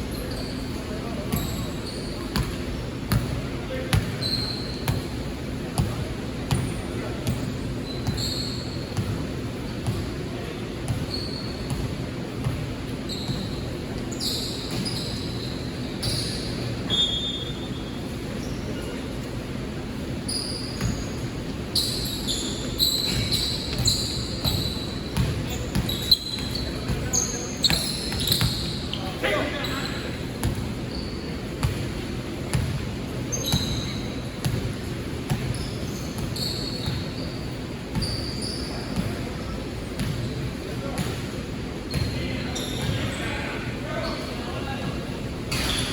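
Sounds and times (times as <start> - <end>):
low hall background noise: 0.0 - 45.9
sneakers squeaking: 0.0 - 45.9
basketball bouncing on court: 2.3 - 5.2, 5.8 - 10.2, 10.8 - 13.6, 23.0 - 28.9, 30.4 - 37.2, 37.9 - 39.4, 40.0 - 41.3.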